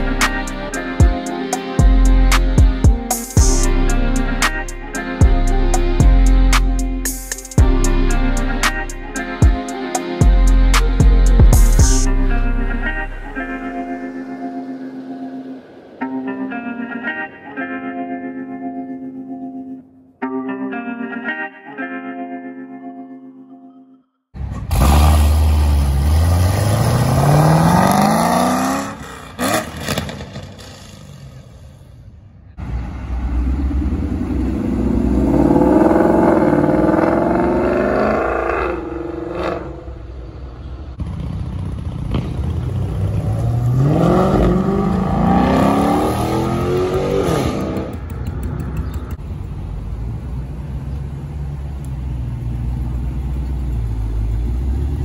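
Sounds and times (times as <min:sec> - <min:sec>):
car engine revving and idling: 0:24.4 - 0:31.8, 0:32.6 - 0:55.0.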